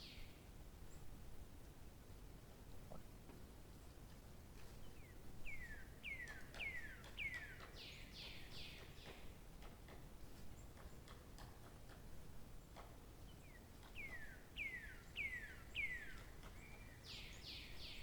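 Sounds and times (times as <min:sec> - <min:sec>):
songbird whistled song: 0:05.4 - 0:09.2, 0:13.4 - 0:18.0.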